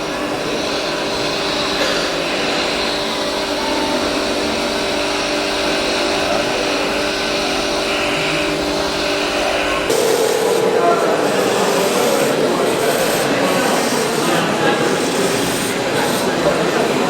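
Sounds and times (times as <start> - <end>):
model machines running: 0.0 - 17.0.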